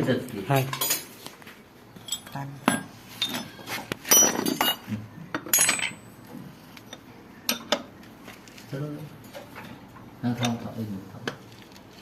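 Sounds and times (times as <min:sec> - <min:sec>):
metal tools clinking on metal: 0:00.6 - 0:01.1, 0:02.0 - 0:06.1.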